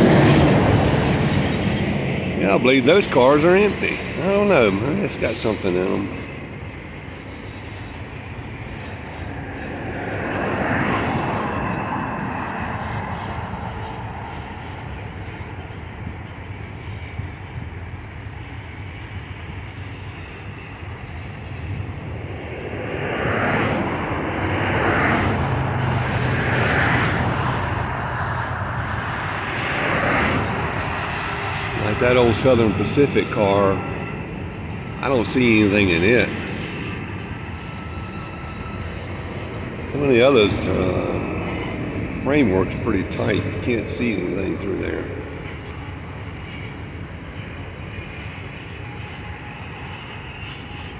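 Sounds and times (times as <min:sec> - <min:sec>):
freight train wheels rumbling on rails: 0:06.6 - 0:29.9.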